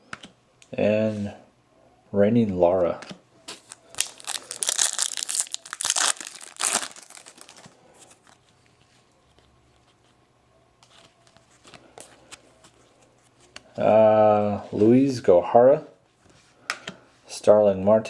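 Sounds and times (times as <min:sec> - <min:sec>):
foil wrapper tearing and crinkling: 0:03.6 - 0:07.8
cards ticking: 0:03.7 - 0:07.7.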